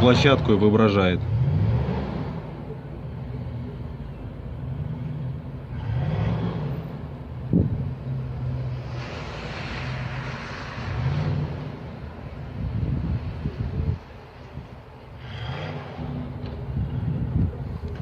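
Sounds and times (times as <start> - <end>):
rushing sound: 8.4 - 12.9.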